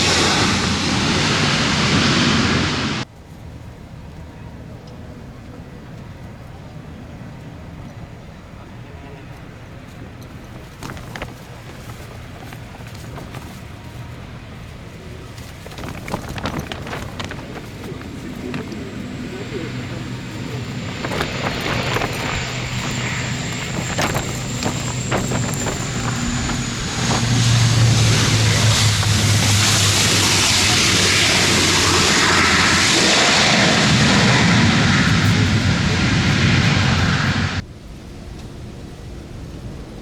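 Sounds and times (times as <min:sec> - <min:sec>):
jet engine whine and rush: 0:00.0 - 0:03.1, 0:15.4 - 0:38.6
wind on microphone: 0:15.6 - 0:37.6.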